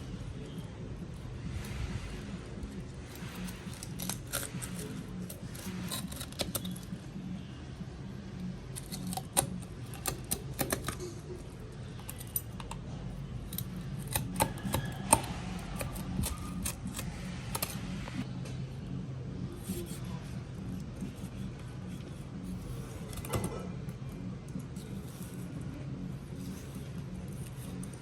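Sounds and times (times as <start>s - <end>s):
steady low hum: 0.0s - 28.0s
kitchen tools clicking on fish: 3.2s - 6.9s, 8.7s - 11.4s, 13.5s - 17.9s.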